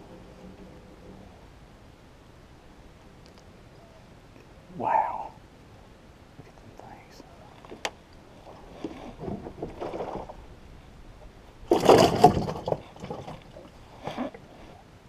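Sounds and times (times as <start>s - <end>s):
water splashing and sloshing: 7.5s - 14.8s.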